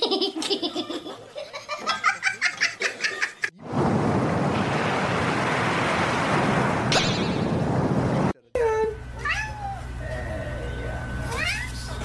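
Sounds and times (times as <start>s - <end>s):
surf and splashing water: 3.6s - 8.4s.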